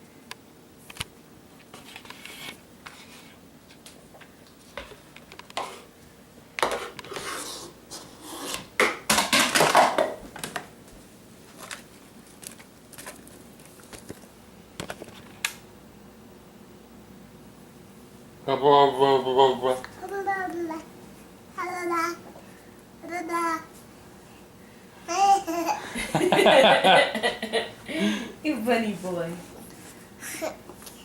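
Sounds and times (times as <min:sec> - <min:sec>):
hand scraping and rubbing: 0:06.8 - 0:08.7.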